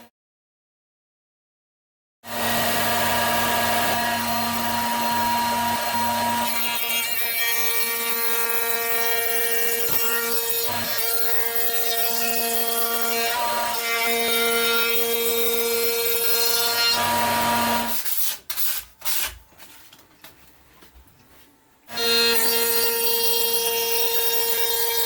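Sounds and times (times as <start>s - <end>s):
electric power tool shaping wood: 2.3s - 17.9s, 21.9s - 25.0s.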